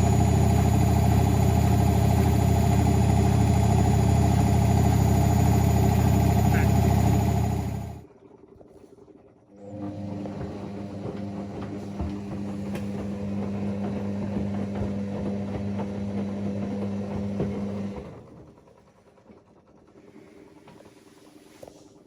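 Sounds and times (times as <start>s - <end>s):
washing machine drum motor humming: 0.0s - 8.0s, 9.6s - 18.8s.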